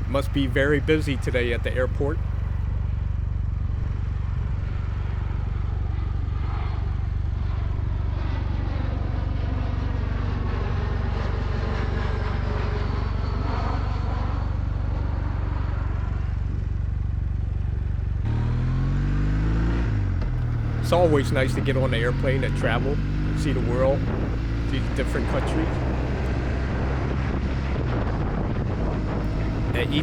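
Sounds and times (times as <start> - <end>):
motorcycle engine idling: 0.0 - 4.1, 20.4 - 26.3, 29.3 - 30.0
airliner passing overhead: 0.0 - 17.4, 20.4 - 30.0
motorcycle pulling away: 18.2 - 27.7.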